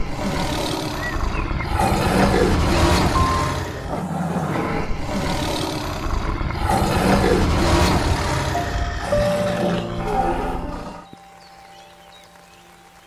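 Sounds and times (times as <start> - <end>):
big cat growling: 0.0 - 11.1.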